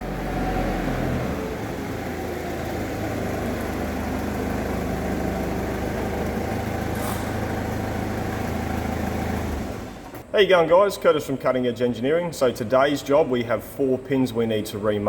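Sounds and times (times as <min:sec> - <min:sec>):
engine idling: 0:00.0 - 0:10.3
short hiss: 0:06.9 - 0:07.4.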